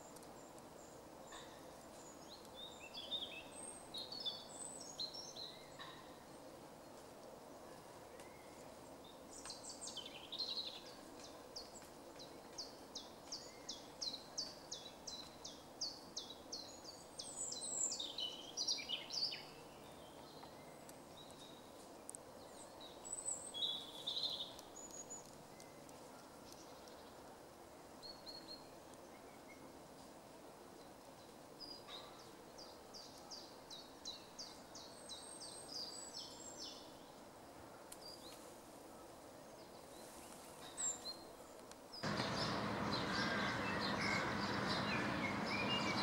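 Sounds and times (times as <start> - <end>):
bird calling high notes: 42.0 - 46.0.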